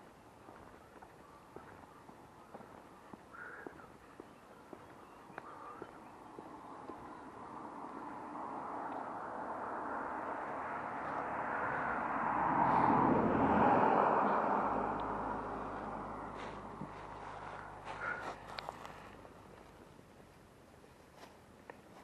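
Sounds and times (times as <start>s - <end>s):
vehicle passing by: 5.9s - 19.5s.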